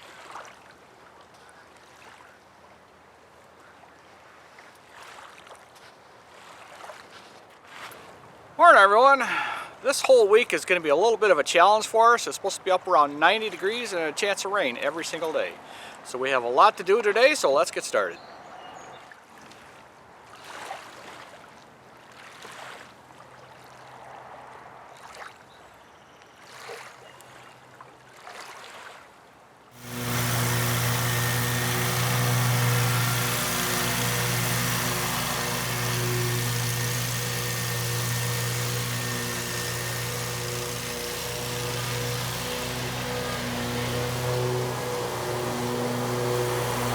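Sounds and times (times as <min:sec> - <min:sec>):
road and wind noise: 0:23.7 - 0:25.6
vehicle engine running: 0:29.8 - 0:46.9.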